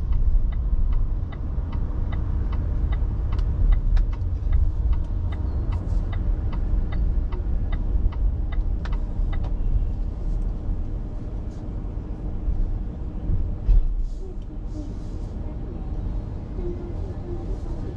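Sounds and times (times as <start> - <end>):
turn signal ticking: 0.0 - 11.0
car road and engine rumble: 0.0 - 17.9.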